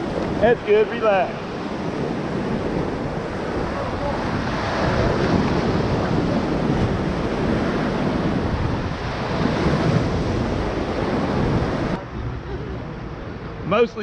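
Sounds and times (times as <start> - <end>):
wind noise on microphone: 0.0 - 12.0
whitewater rushing: 0.0 - 12.6.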